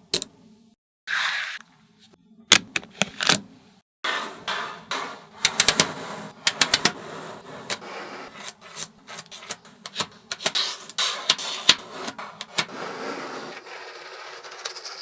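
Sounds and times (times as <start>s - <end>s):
magnetic balls scraping: 4.4s - 15.0s.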